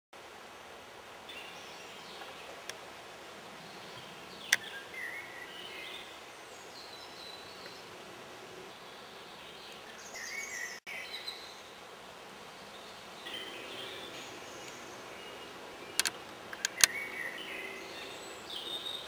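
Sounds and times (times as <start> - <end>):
outdoor background hiss: 0.2 - 19.0
faint birds chirping: 0.6 - 19.0
sharp clicks: 16.0 - 17.0.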